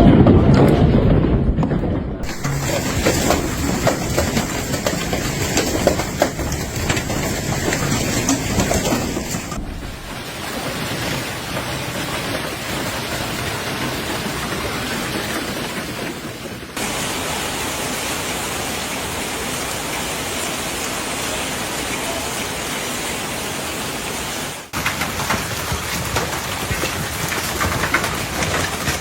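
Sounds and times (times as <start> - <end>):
hailstones clattering: 0.0 - 18.5, 24.7 - 29.0
heavy rain downpour: 0.0 - 29.0.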